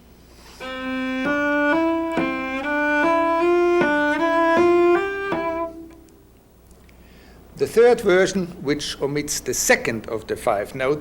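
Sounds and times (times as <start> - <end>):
cello playing finger exercise: 0.4 - 6.2.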